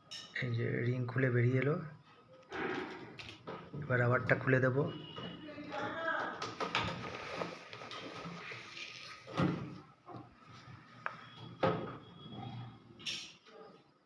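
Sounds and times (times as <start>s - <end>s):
rubber scraping on cabinet: 6.6s - 9.9s.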